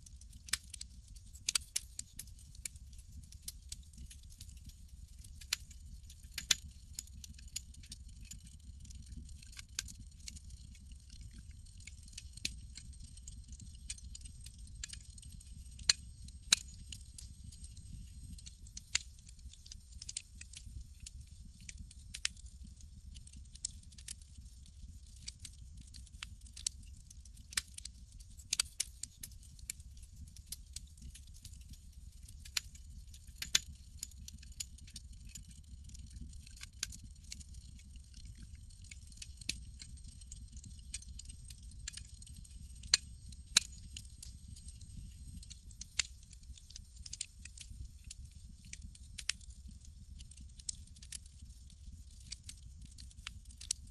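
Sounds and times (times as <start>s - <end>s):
low fire rumble: 0.2s - 53.7s
campfire crackling: 6.4s - 8.4s, 33.4s - 46.1s, 51.9s - 53.7s.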